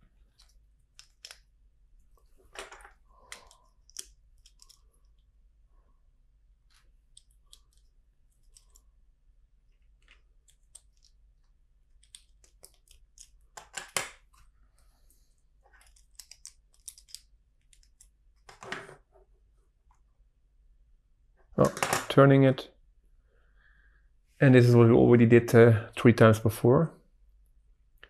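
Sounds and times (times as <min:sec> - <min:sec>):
plastic bricks clicking: 0:02.6 - 0:04.8, 0:15.8 - 0:18.1.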